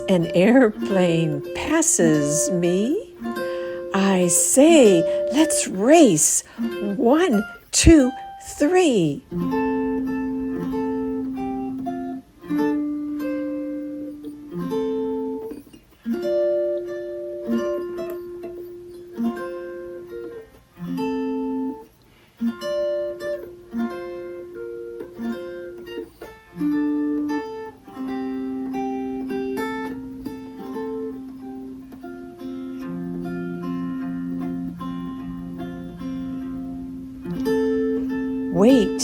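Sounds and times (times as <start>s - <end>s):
mountain dulcimer playing: 0.0s - 5.8s.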